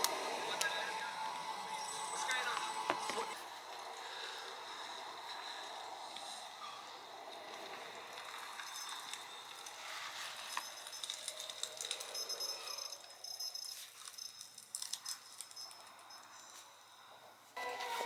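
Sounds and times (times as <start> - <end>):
small hard objects clinking: 7.6 - 16.5.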